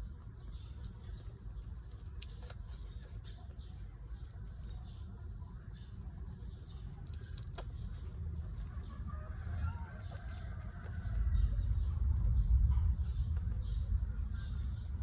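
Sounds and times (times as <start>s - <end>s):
puppies squeaking: 0.0s - 15.0s
low rumble: 6.8s - 15.0s.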